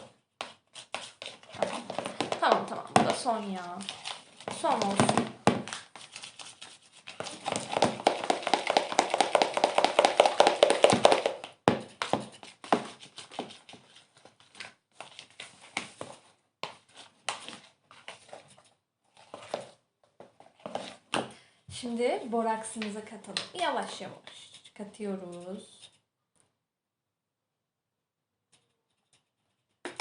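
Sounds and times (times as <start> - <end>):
slime stirred in a bowl: 0.0 - 14.4.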